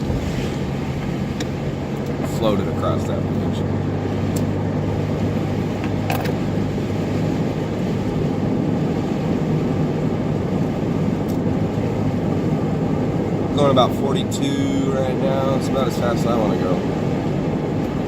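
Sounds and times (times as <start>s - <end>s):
car engine and tyre noise: 0.0s - 18.0s.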